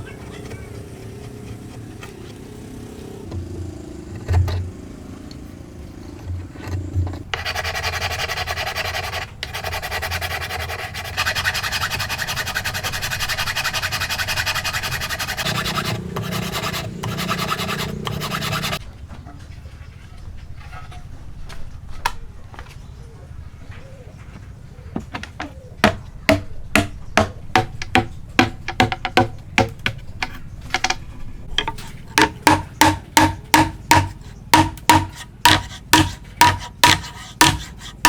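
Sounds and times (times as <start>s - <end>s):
scraping on wood: 6.0s - 18.8s, 25.0s - 38.0s.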